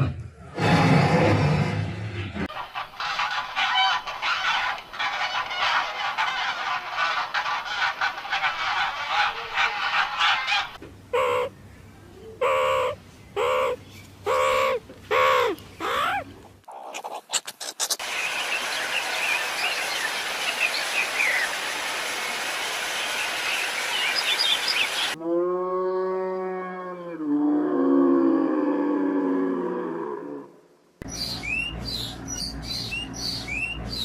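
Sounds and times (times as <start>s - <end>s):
geese honking: 2.6s - 11.5s
small birds chirping: 11.2s - 21.6s, 22.9s - 25.2s, 31.0s - 34.0s.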